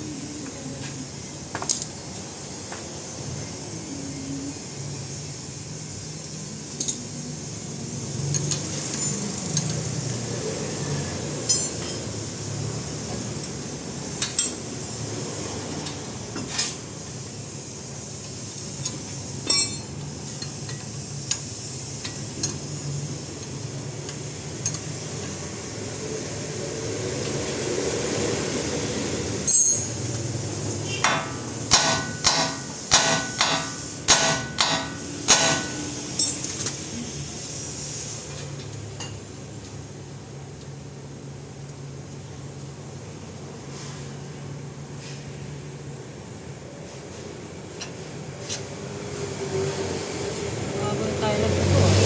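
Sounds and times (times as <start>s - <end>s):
hammer striking metal: 31.0s - 36.5s.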